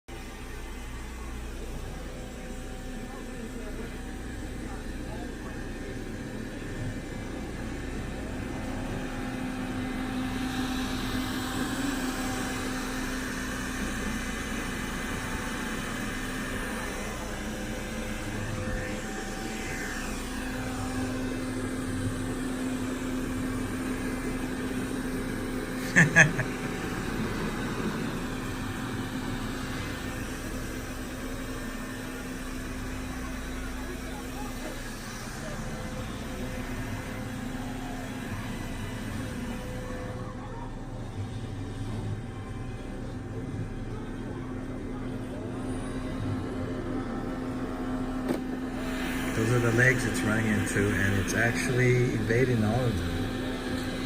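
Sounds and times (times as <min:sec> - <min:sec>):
robot vacuum whirring: 0:03.4 - 0:40.8, 0:48.2 - 0:54.0.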